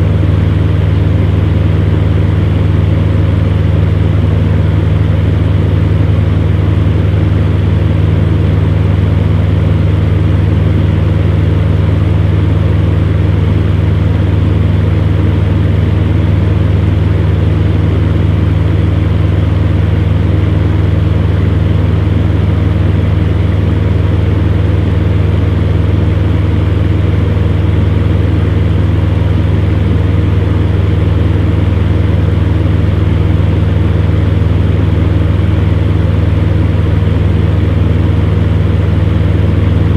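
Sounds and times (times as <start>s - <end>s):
electric fan humming: 0.0s - 39.9s.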